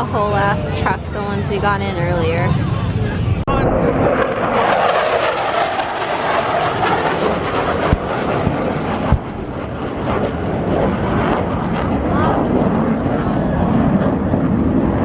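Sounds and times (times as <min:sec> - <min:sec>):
aircraft engines and rotors rumbling: 0:00.0 - 0:15.0
low thumps: 0:07.8 - 0:09.8.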